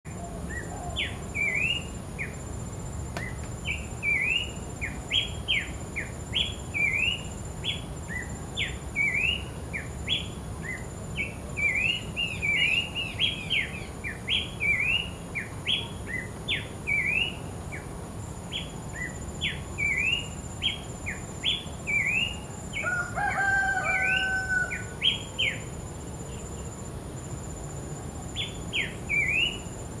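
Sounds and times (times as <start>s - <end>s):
lower-pitched bird call: 18.5s - 25.7s.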